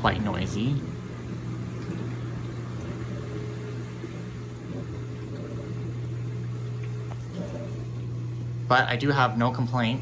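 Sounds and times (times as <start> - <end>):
dishwasher drain pump humming: 0.0 - 10.0.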